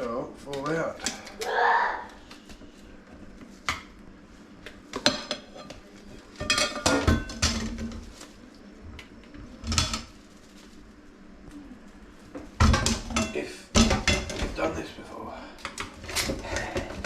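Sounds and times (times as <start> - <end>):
plates and cutlery clattering: 6.4 - 8.0, 12.6 - 14.6.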